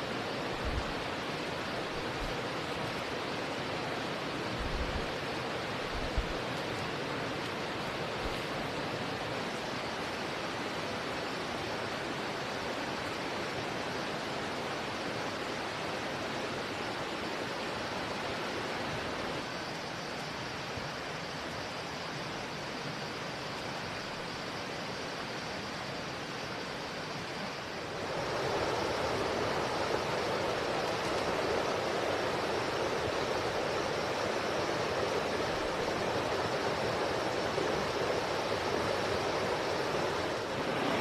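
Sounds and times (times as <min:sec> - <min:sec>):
steady rushing noise: 0:00.0 - 0:13.9, 0:25.7 - 0:41.0.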